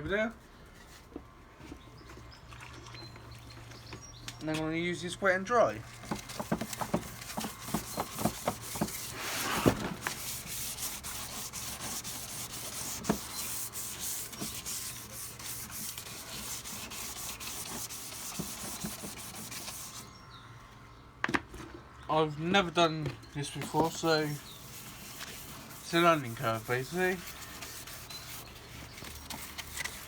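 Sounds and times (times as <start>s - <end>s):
sandpaper rubbing on bumper: 6.4s - 20.1s, 23.6s - 30.0s.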